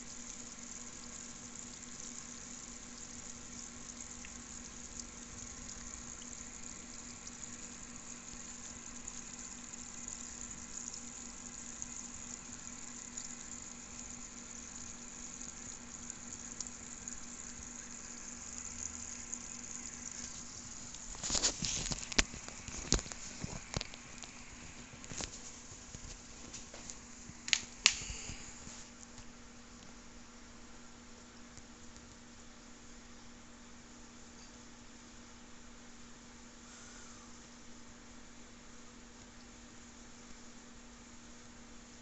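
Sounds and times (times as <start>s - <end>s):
aquarium water bubbling: 0.0s - 29.0s
faint steady hum: 0.0s - 42.0s.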